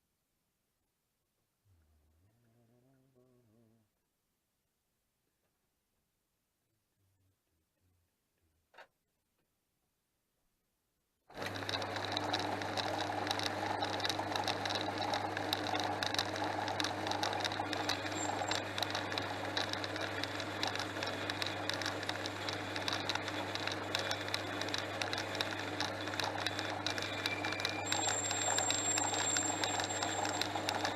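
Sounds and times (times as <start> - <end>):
scratchy crackle of clicks: 11.3 - 30.9
metal lathe running: 11.4 - 30.9.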